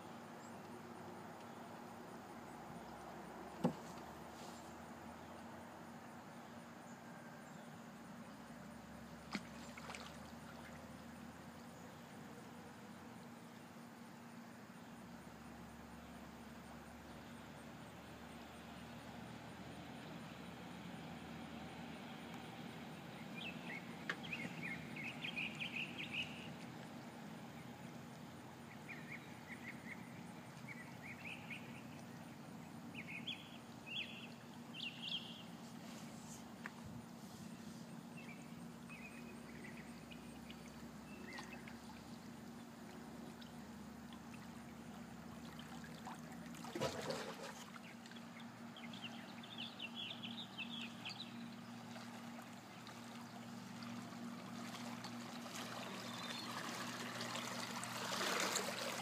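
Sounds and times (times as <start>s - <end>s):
faint low hum: 0.0s - 59.0s
birds chirping: 23.0s - 26.6s, 28.7s - 35.6s, 46.8s - 51.9s, 55.8s - 57.0s.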